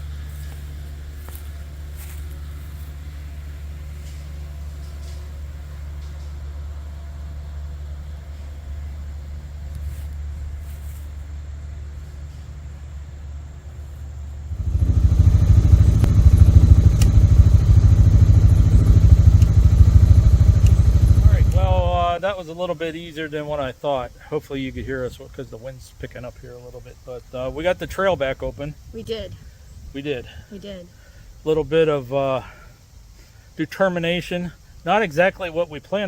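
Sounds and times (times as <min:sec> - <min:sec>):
loud rough low rumble: 0:00.0 - 0:22.5
tractor engine humming: 0:00.0 - 0:36.0.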